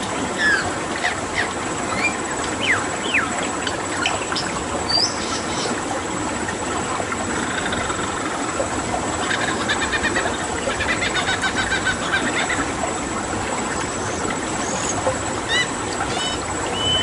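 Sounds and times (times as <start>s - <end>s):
flowing water: 0.0s - 17.0s
birds whistling and chirping: 0.4s - 3.4s, 4.0s - 5.7s, 14.0s - 17.0s.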